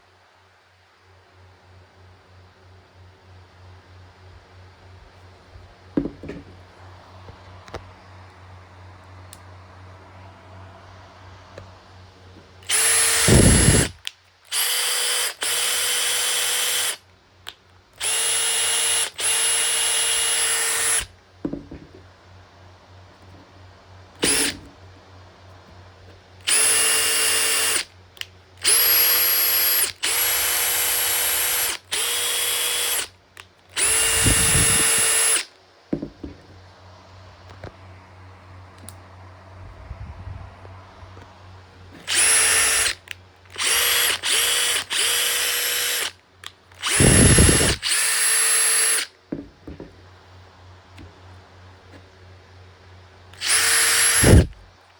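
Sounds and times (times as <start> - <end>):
impact driver motor whine: 12.6 - 17.0, 18.0 - 22.0, 24.2 - 24.7, 26.5 - 27.9, 28.6 - 33.1, 33.8 - 36.4, 42.0 - 46.1, 46.8 - 49.1, 53.4 - 54.6.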